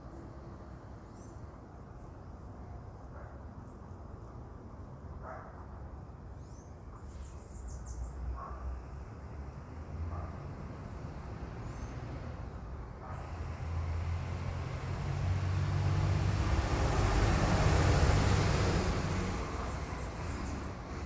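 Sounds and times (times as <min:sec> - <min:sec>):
vehicle engine hum passing by: 0:08.7 - 0:21.0.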